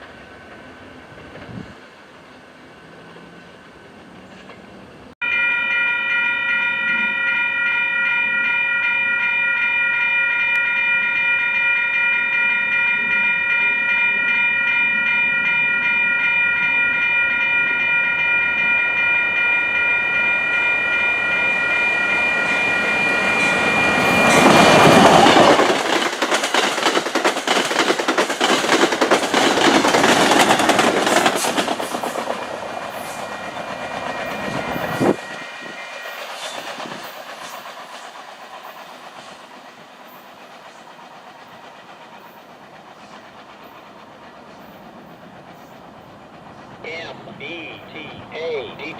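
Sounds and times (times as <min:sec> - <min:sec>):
train wheels clattering: 0:22.1 - 0:46.8.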